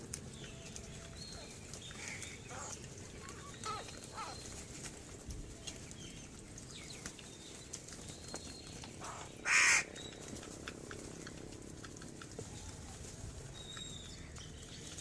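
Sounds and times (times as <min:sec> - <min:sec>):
small birds chirping: 0:00.0 - 0:15.0
crow cawing: 0:09.0 - 0:09.9.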